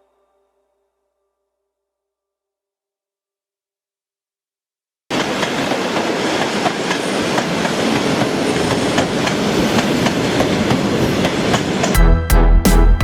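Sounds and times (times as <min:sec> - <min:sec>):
train wheels rumbling on rails: 0:05.1 - 0:12.1.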